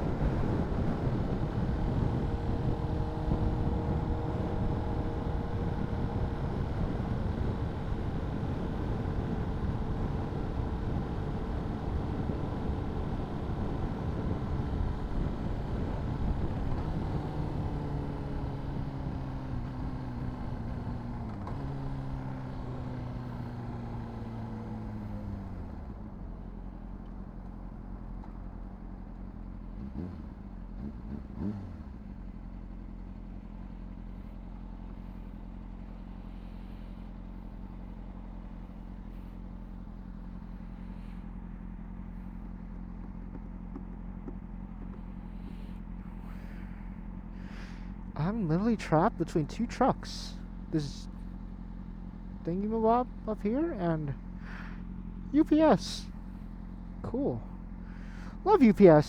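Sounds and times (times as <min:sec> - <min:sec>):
motorcycle engine idling: 0:00.1 - 0:59.0.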